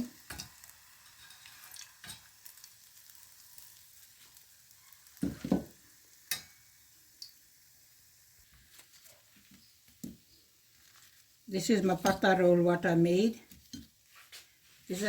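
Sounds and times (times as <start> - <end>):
food sizzling in oil: 0.0 - 15.0
utensil knocking pan: 5.2 - 5.7.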